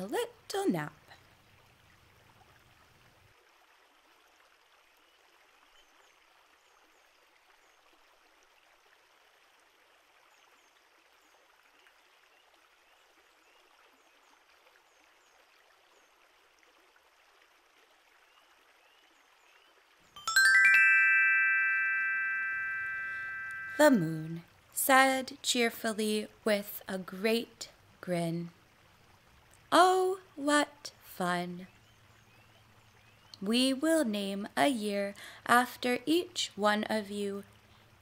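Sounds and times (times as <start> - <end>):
faint steady hiss: 17.5 - 38.0
faint high chirps: 20.2 - 24.1.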